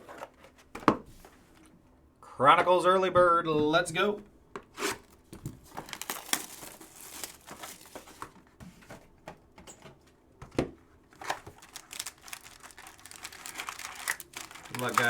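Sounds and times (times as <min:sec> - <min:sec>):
card wrappers tearing and crinkling: 0:05.7 - 0:08.2, 0:11.1 - 0:15.0.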